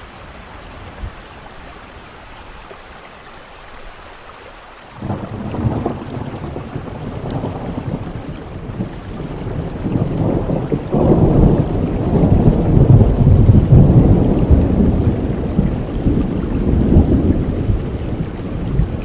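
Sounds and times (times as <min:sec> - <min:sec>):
steady rain: 0:00.0 - 0:19.0
low roll of thunder: 0:05.0 - 0:19.0.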